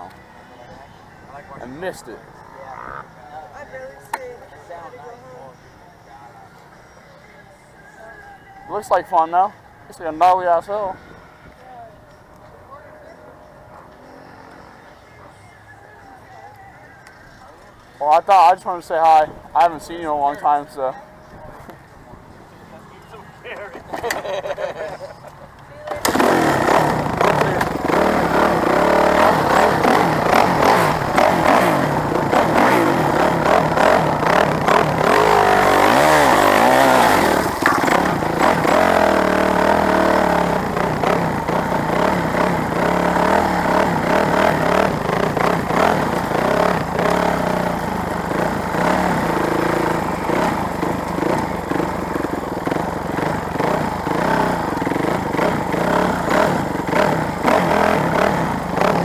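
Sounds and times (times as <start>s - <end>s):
motorcycle engine revving: 1.4s - 3.6s, 13.8s - 15.0s, 25.8s - 59.0s.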